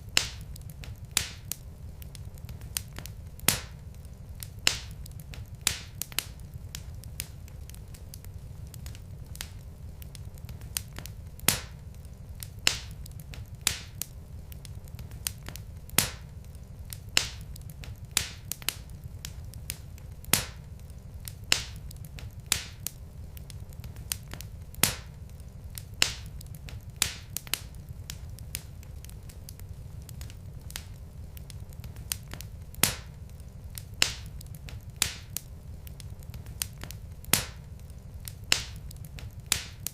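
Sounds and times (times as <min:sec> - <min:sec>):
logs crackling in a fireplace: 0:00.0 - 0:39.9
low steady rumble: 0:00.0 - 0:39.9.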